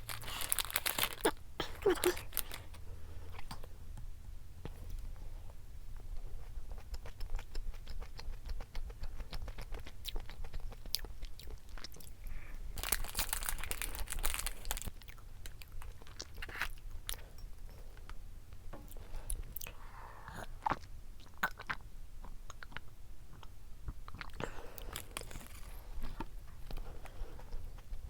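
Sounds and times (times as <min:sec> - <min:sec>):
crunchy chewing: 0:06.5 - 0:17.3.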